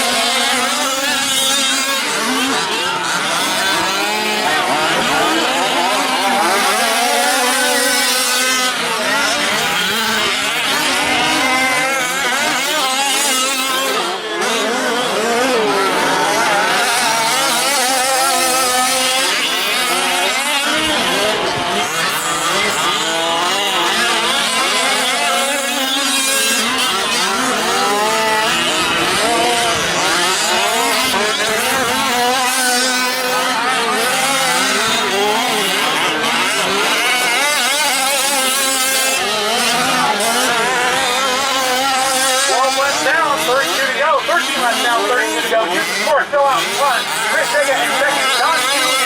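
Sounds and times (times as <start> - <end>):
small engines revving: 0.0 - 49.0.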